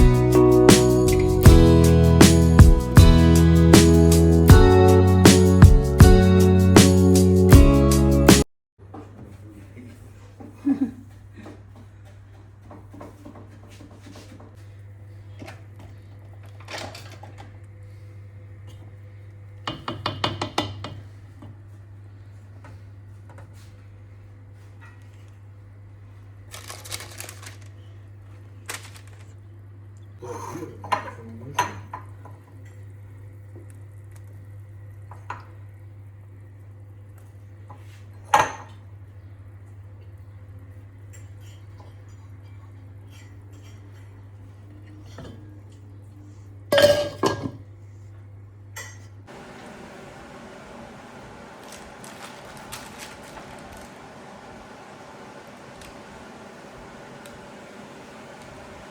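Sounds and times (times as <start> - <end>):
dishes and utensils clinking: 46.7 - 47.6
steady low hum: 49.3 - 58.9.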